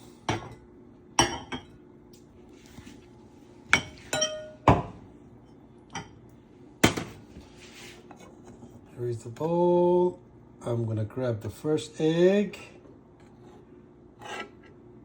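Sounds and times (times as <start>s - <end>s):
dishes clinking together: 3.7s - 5.0s.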